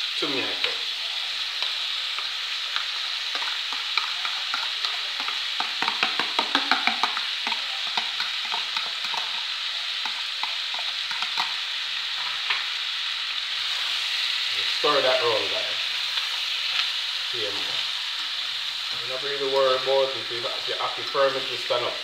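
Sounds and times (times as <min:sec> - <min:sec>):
food sizzling in skillet: 0:00.0 - 0:22.0
stirring clicks and scrapes: 0:01.6 - 0:11.6.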